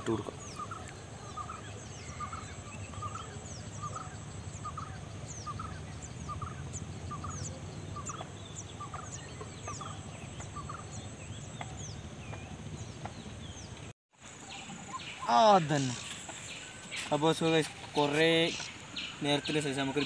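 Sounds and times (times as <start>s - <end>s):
steady low rumble: 0.0s - 13.9s.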